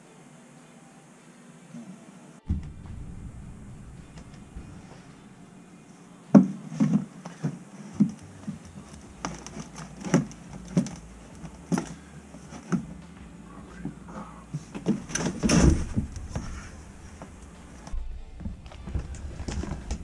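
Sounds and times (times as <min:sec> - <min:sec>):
knocks and clunks: 0:02.5 - 0:05.4, 0:13.8 - 0:20.0.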